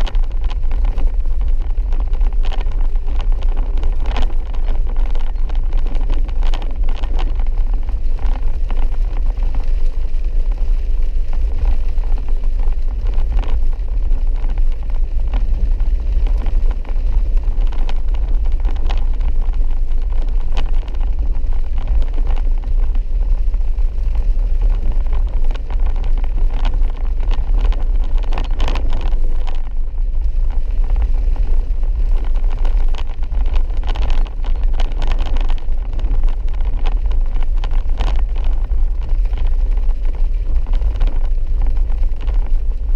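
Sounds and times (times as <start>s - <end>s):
vehicle driving on dirt road: 0.0s - 42.9s.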